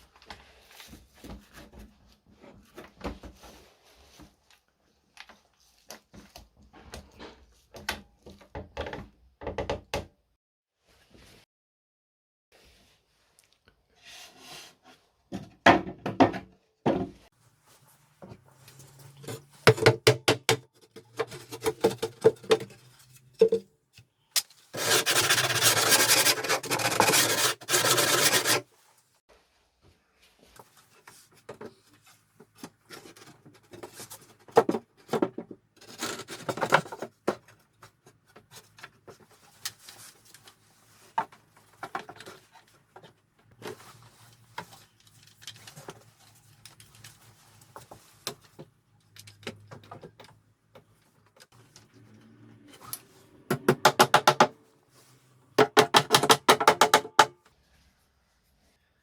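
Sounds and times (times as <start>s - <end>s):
rubbing and scraping on wood: 20.8s - 23.5s, 24.7s - 29.4s.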